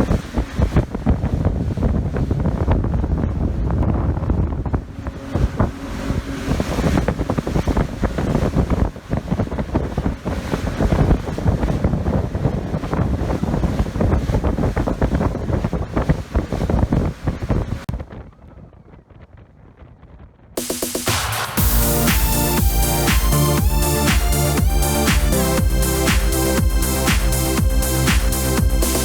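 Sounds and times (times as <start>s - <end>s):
wind buffeting microphone: 0.0s - 20.6s.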